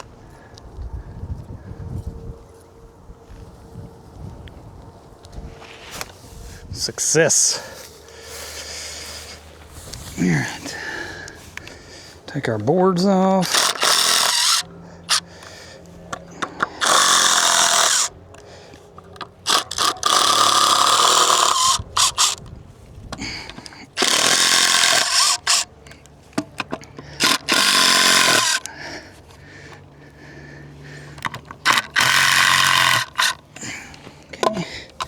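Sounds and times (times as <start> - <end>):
power drill running: 13.0 - 18.5, 19.1 - 22.5, 23.2 - 26.0, 26.9 - 29.0, 31.2 - 34.0.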